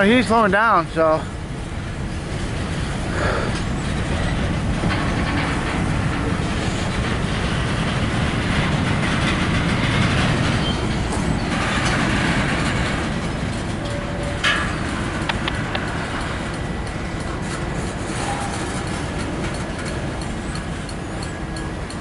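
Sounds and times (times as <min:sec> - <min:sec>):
freight cars rolling on rails: 0:00.0 - 0:22.0.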